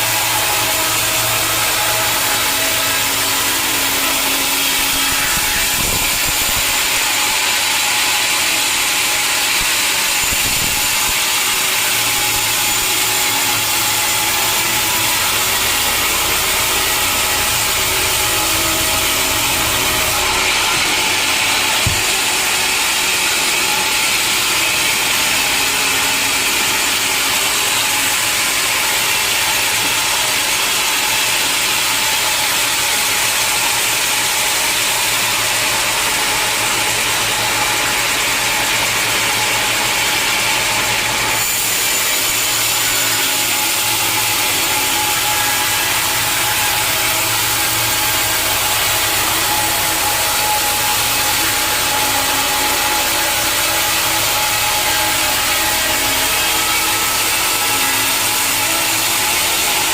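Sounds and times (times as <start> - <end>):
sawmill saw cutting log: 0.0 - 59.9
low motor hum: 11.9 - 23.5
sharp knock: 21.8 - 22.3.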